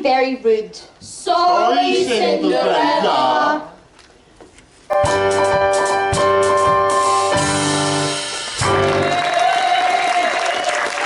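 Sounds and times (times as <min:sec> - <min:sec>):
electronic keyboard chords: 0:04.9 - 0:09.0
drum hits: 0:04.9 - 0:09.1
audience applause: 0:08.2 - 0:11.0.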